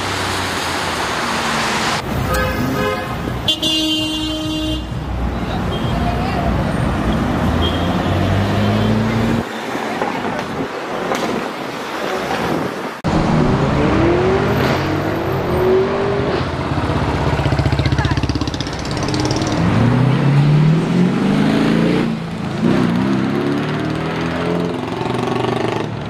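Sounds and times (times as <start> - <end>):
sports car engines accelerating: 13.1 - 25.1.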